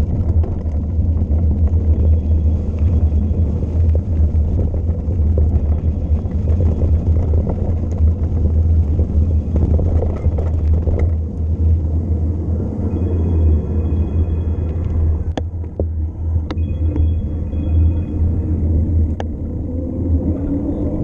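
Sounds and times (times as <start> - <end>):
faint clicks and rattles: 0.0 - 11.9
wind buffeting microphone: 0.0 - 21.0.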